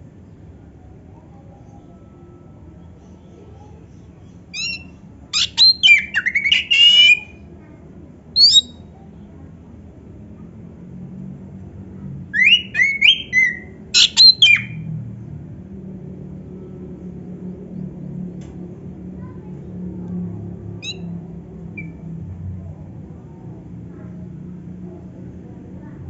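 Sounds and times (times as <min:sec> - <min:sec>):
bird singing varied whistles: 0:04.6 - 0:07.4, 0:08.4 - 0:08.8, 0:12.4 - 0:14.8
short bird call: 0:05.4 - 0:07.3, 0:08.4 - 0:08.8.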